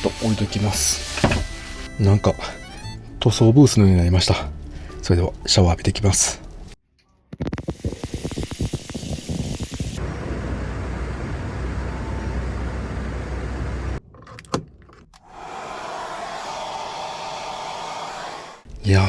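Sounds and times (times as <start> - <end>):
shower water spray hissing: 7.6 - 10.0.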